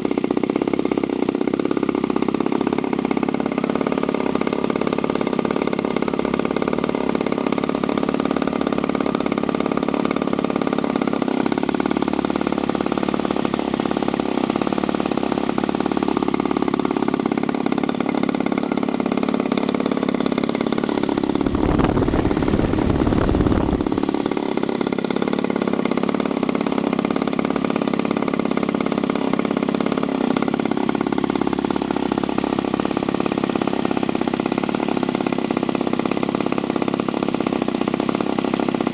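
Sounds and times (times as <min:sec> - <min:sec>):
model aircraft engine running: 0:00.0 - 0:38.9
low buffeting rumble: 0:21.4 - 0:24.0.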